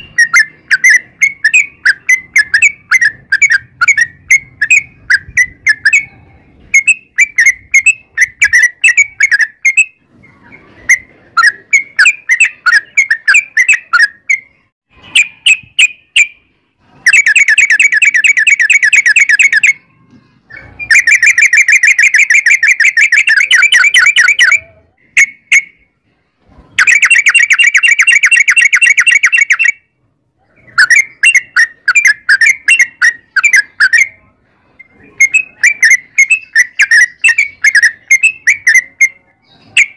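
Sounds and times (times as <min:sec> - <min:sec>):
bird chirping: 0:00.0 - 0:25.9, 0:26.5 - 0:39.9
bird rapid rolling trill: 0:00.0 - 0:25.9, 0:26.6 - 0:29.9, 0:30.5 - 0:34.2, 0:34.8 - 0:39.9.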